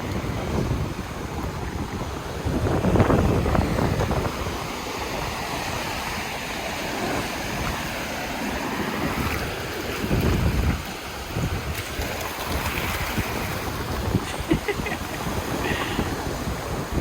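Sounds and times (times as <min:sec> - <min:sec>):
ocean surf washing on beach: 0:00.0 - 0:17.0
wind buffeting microphone: 0:00.0 - 0:17.0.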